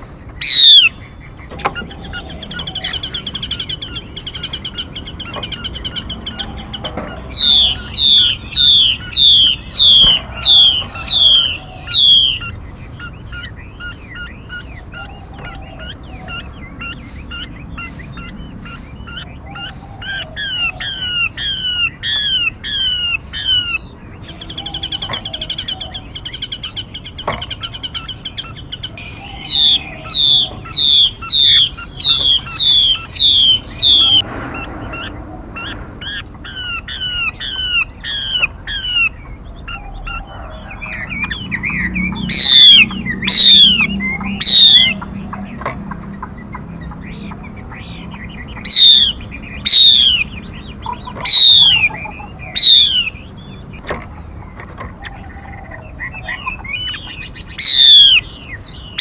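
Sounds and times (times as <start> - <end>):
songbird whistled notes: 0.0 - 45.1, 47.1 - 53.6, 56.1 - 59.0
buzzy bird trill: 0.0 - 45.6, 46.4 - 53.8, 56.2 - 59.0.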